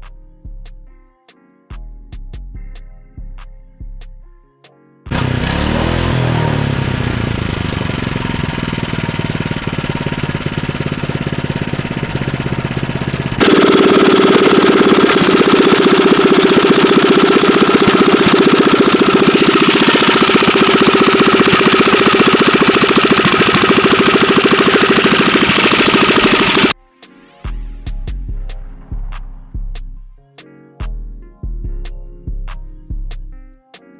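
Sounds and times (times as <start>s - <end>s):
engine through loud exhaust: 5.1s - 26.8s.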